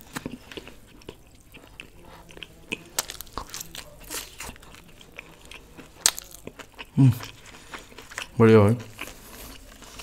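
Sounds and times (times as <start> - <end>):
person chewing food: 0.0 - 10.0
crisp crunches: 2.7 - 4.9, 6.0 - 6.7.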